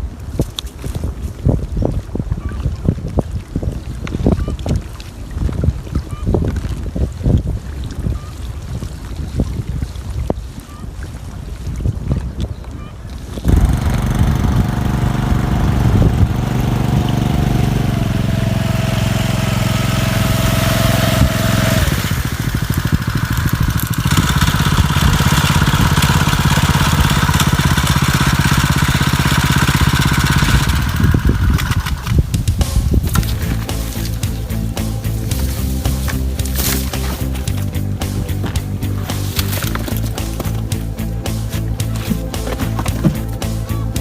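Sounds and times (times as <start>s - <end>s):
boat engine running: 12.3s - 44.0s.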